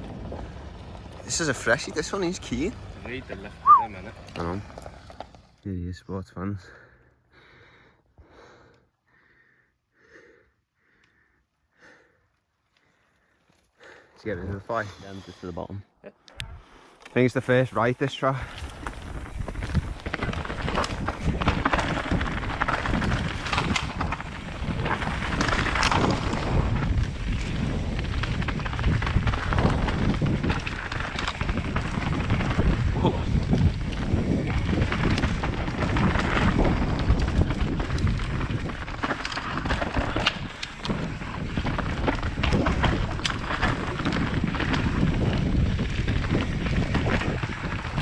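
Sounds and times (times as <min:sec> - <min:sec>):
mountain bike knocking and rattling: 0:18.4 - 0:48.0
wind buffeting microphone: 0:18.4 - 0:48.0.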